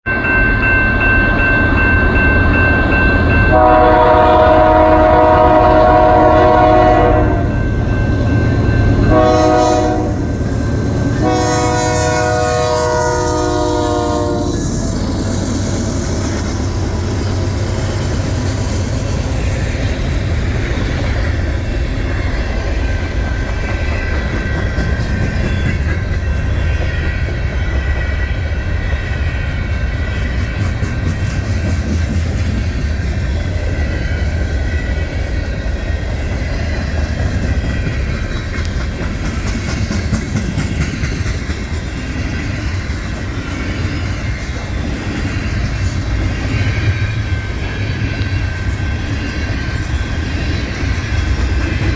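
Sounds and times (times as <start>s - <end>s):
freight train wheels rumbling and clacking: 0.0s - 51.9s.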